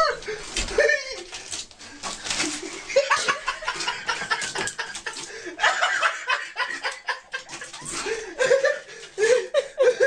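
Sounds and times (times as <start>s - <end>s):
people chuckling and laughing: 2.6s - 10.0s.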